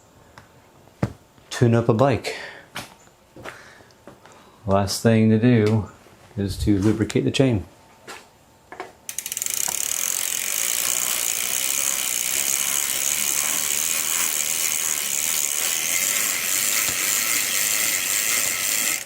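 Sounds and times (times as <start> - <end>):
bike freewheel ratcheting: 9.1 - 19.0.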